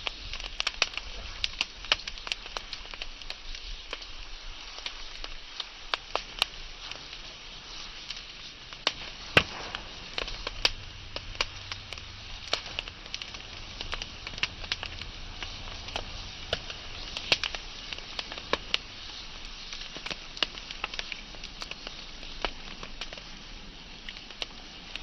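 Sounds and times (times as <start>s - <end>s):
low rumble of flames: 0.0s - 25.0s
wood fire crackling and popping: 0.0s - 25.0s.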